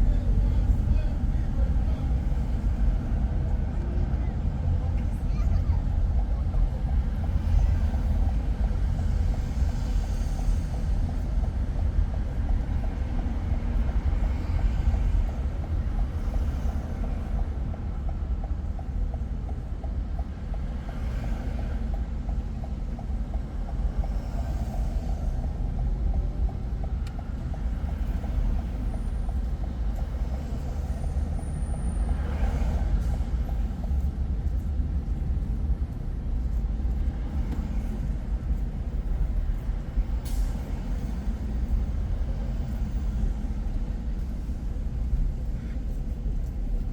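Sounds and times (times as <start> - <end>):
car driving low rumble: 0.0 - 46.9
tyre hiss of passing traffic: 20.3 - 25.9, 26.6 - 46.6.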